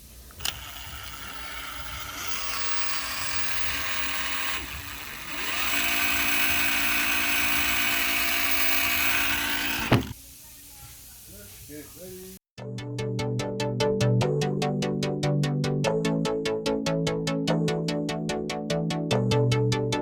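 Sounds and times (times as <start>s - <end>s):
power tool whining: 0.0s - 10.2s
power tool switch click: 0.3s - 10.2s.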